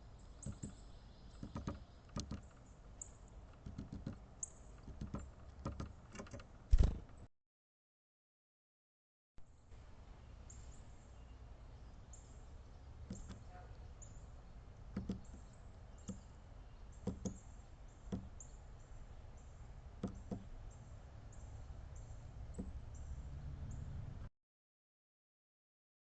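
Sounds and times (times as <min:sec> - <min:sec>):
bird pecking at suet: 0:01.4 - 0:02.6.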